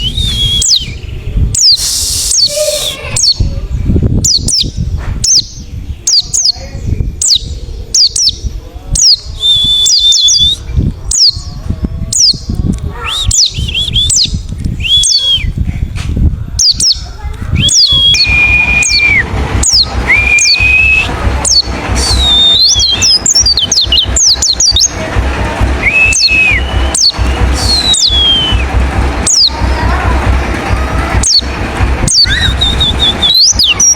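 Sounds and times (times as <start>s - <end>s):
white-eye bird singing: 0.0s - 3.5s, 4.2s - 11.5s, 16.6s - 25.0s, 25.8s - 29.6s
low rumble: 0.0s - 33.9s.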